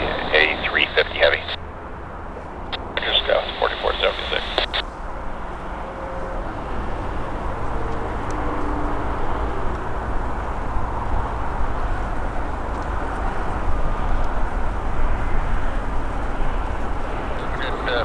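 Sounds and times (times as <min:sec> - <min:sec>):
jet engine rumble with whine: 0:00.0 - 0:18.0.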